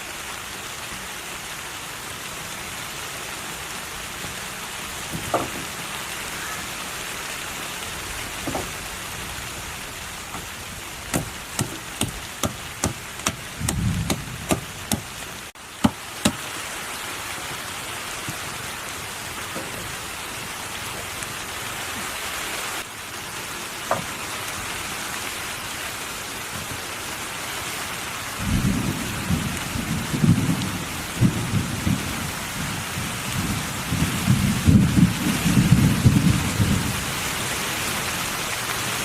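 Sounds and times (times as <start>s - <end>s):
steady rain hissing: 0.0s - 39.0s
low uneven rumbling: 3.9s - 15.5s.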